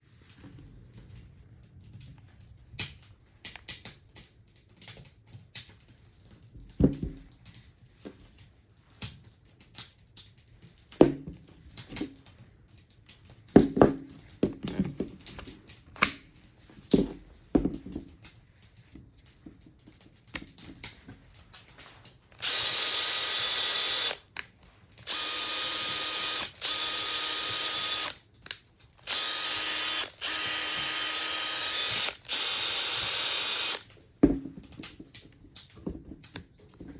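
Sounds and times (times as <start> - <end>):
impact driver motor running: 22.4 - 24.2, 25.0 - 28.2, 29.0 - 33.9.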